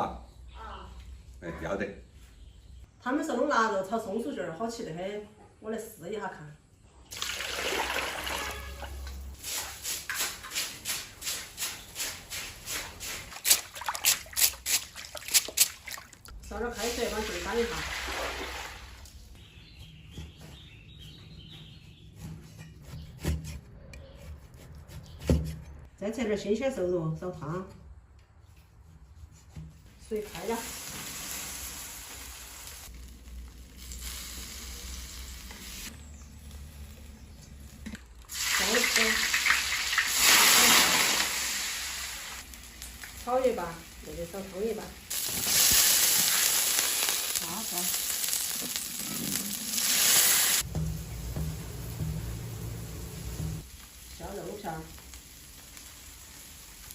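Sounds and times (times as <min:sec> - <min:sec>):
food sizzling: 0:16.5 - 0:19.0, 0:30.2 - 0:56.9
low hum: 0:50.7 - 0:53.6.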